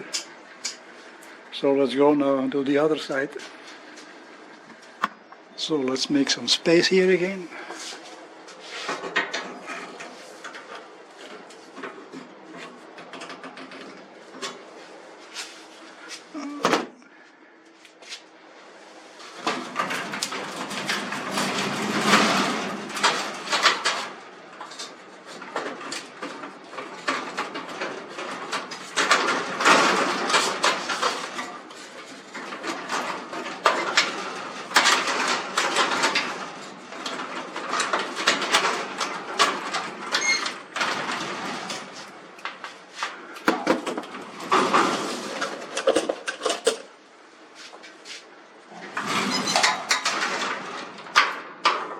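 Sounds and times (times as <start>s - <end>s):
metal clattering and scraping: 19.1s - 47.0s, 48.7s - 51.9s.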